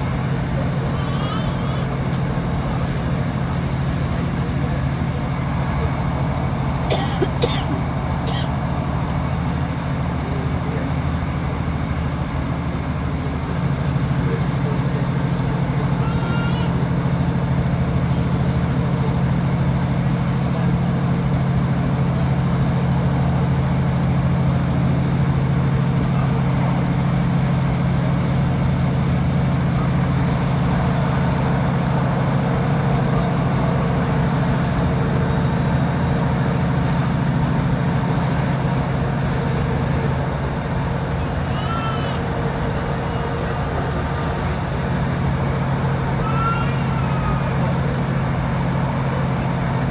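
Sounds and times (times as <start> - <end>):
diesel engine drone: 0.0 - 49.9
wheels rushing on rail: 0.0 - 49.9.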